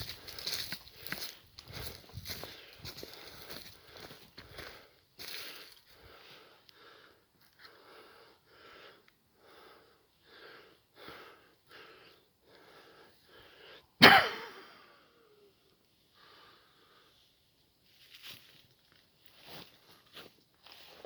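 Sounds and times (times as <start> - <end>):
person sneezing: 14.0 - 14.9.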